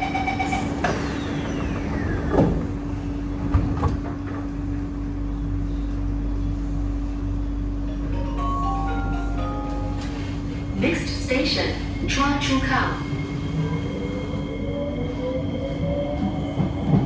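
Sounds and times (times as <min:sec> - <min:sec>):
train doors closing with thump: 0:00.0 - 0:06.6, 0:09.4 - 0:12.9.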